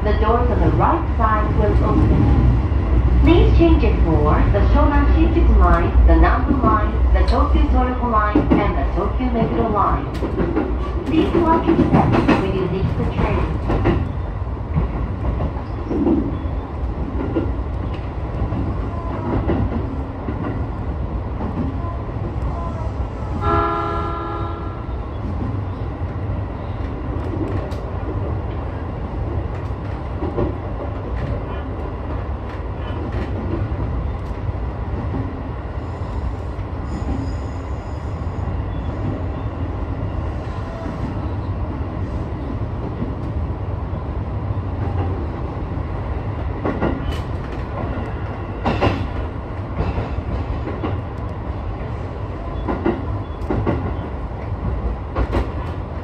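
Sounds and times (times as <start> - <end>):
train wheels rumbling on rail: 0.0 - 56.0
train horn: 23.4 - 25.0
faint rail-joint clicks: 52.6 - 54.0.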